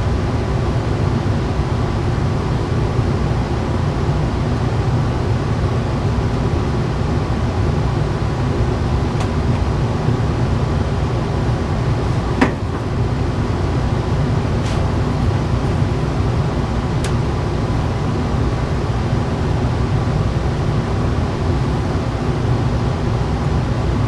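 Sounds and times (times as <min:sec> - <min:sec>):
sharp knock: 0:12.4 - 0:13.0.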